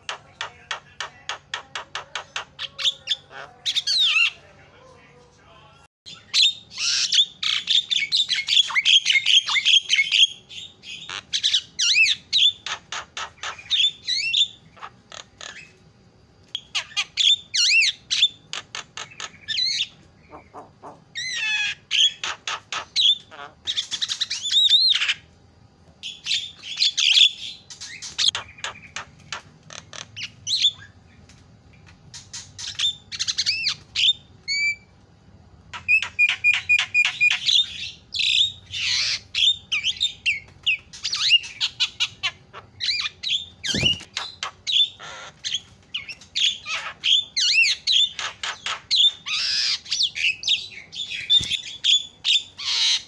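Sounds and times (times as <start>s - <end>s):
bird chattering and whistling: 6.1s - 15.8s, 16.6s - 25.2s, 35.7s - 53.0s.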